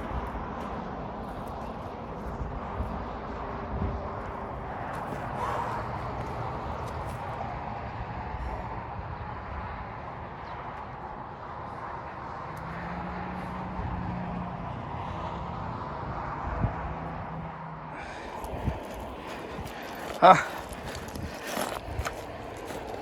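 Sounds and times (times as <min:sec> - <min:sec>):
strong storm wind blowing: 0:00.0 - 0:12.8, 0:18.0 - 0:23.0.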